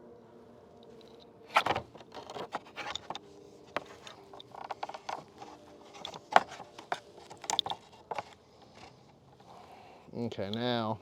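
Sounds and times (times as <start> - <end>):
faint steady hum: 0.0 - 11.0
pulley hardware clicking and rattling: 1.0 - 9.5.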